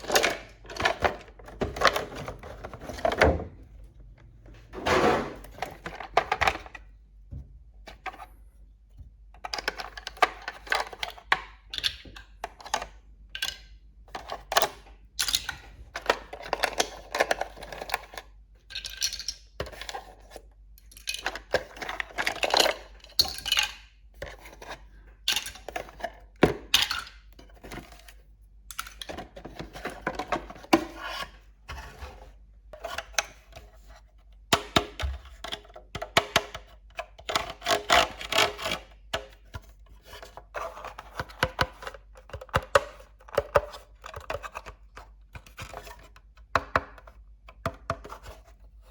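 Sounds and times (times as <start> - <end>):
plastic toy pieces clattering: 0.0 - 3.1, 18.7 - 19.5.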